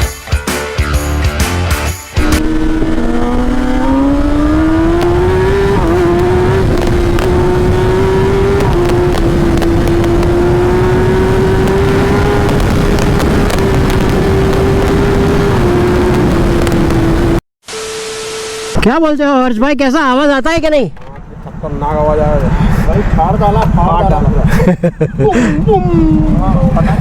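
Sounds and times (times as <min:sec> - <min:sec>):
heavy wind noise: 0:02.2 - 0:17.4
motorcycle engine at high revs: 0:02.2 - 0:17.4.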